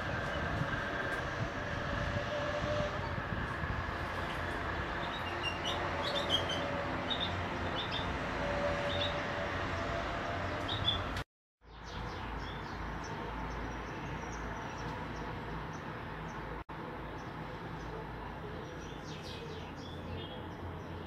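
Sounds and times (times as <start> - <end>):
small birds chirping: 4.2 - 8.2, 10.6 - 21.0.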